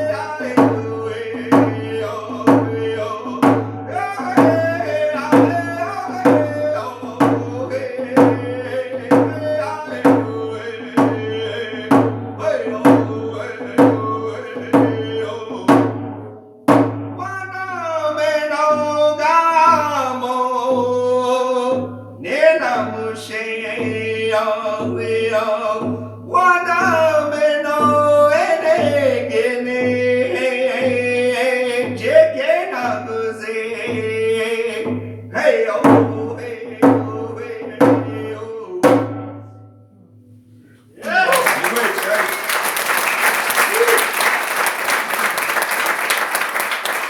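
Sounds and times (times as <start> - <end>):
man singing: 0.0 - 16.0, 17.2 - 39.1, 40.9 - 44.2
steady drumbeat: 0.0 - 17.5, 41.2 - 47.0.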